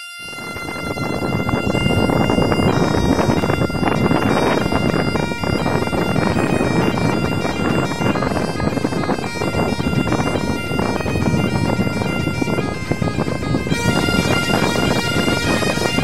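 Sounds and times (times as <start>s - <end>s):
bagpipe tune over drone: 0.0s - 16.0s.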